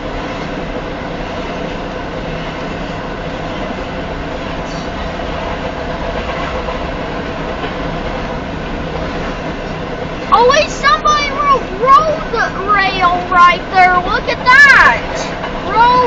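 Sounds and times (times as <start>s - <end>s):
steel train wheels on rails: 0.0s - 16.0s.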